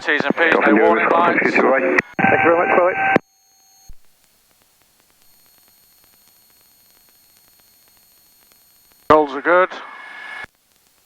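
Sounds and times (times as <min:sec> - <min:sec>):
intercom hiss: 0:00.0 - 0:03.2, 0:09.1 - 0:10.5.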